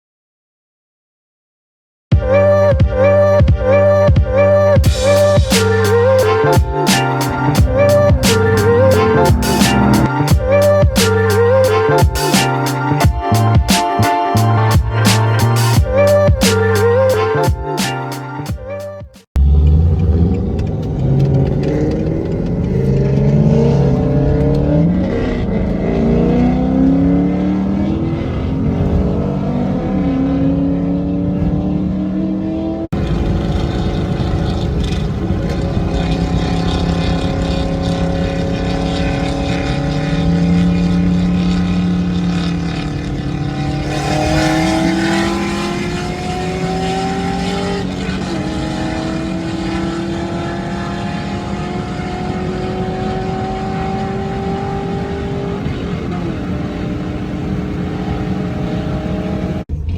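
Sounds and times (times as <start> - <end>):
car engine accelerating through gears: 3.7 - 17.3, 19.4 - 59.9.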